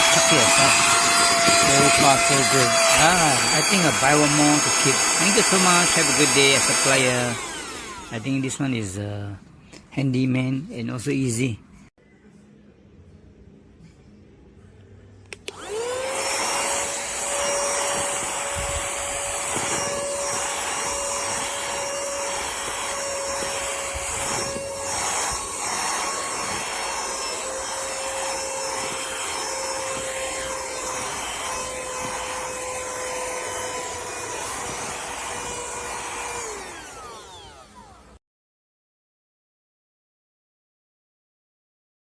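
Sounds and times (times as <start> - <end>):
handheld vacuum cleaner whining: 0.0 - 8.9, 15.3 - 38.2.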